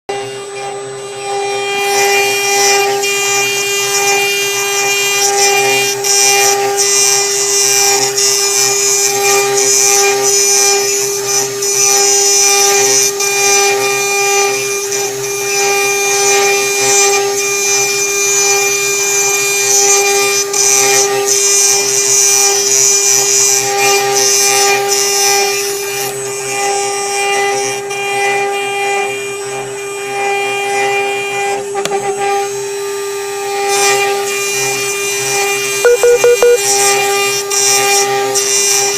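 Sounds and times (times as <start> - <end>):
router spindle whine: 0.1 - 17.4.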